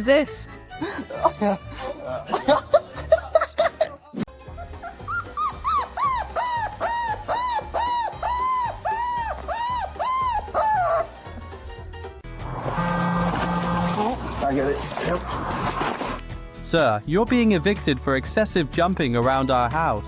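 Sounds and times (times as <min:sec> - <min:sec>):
dog whining yelps: 0:04.8 - 0:11.2.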